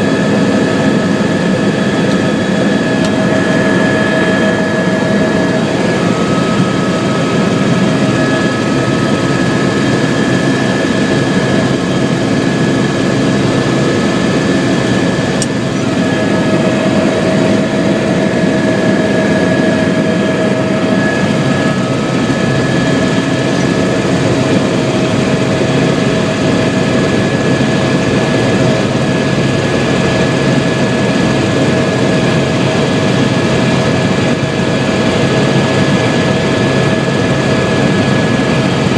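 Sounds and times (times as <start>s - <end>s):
helicopter engine and rotor: 0.0s - 38.9s
high turbine whine: 0.0s - 38.9s.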